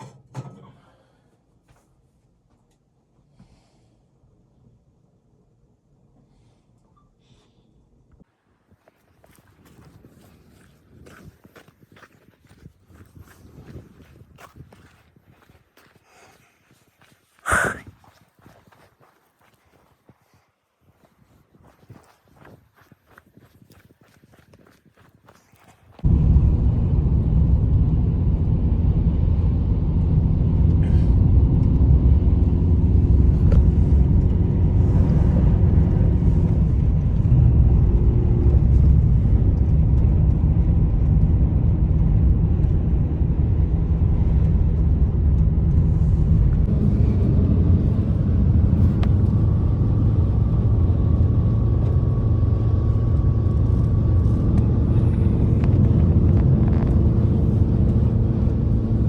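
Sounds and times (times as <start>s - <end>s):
loud low rumble: 26.0s - 59.0s.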